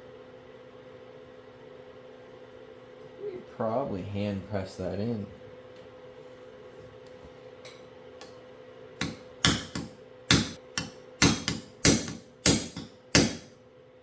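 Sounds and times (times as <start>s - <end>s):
hammer tapping on metal: 9.0s - 13.5s.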